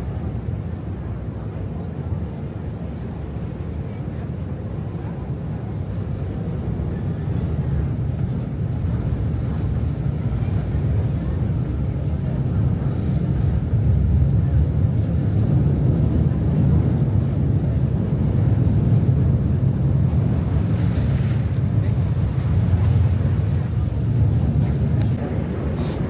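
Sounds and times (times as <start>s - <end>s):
wind buffeting microphone: 5.0s - 26.0s
rushing water: 20.1s - 26.0s.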